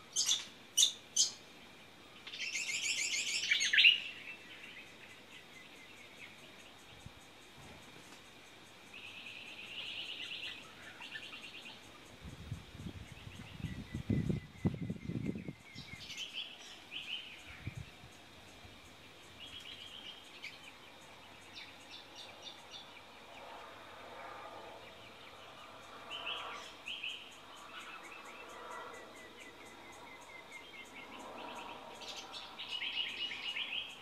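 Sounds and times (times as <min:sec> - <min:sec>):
rapid high bird chirps: 0:00.1 - 0:01.4.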